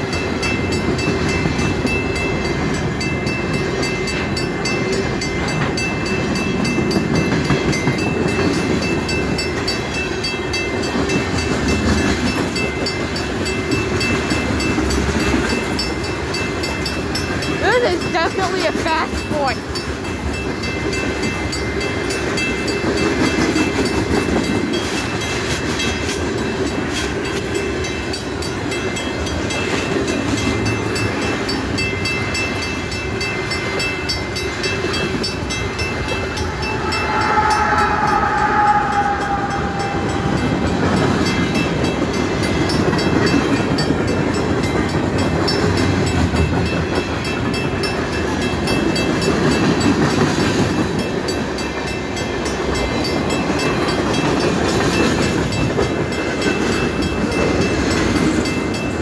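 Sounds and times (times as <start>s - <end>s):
train wheels clattering on rails: 0.0s - 59.0s
brief high tone: 35.8s - 41.5s.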